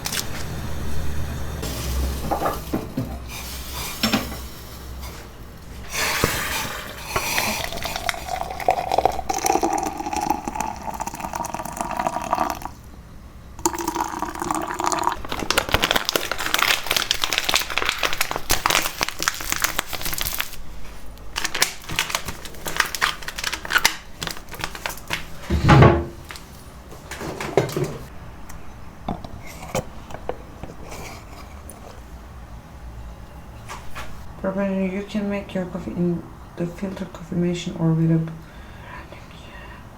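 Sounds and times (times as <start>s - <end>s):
water running into container: 5.9s - 12.9s, 13.6s - 20.5s.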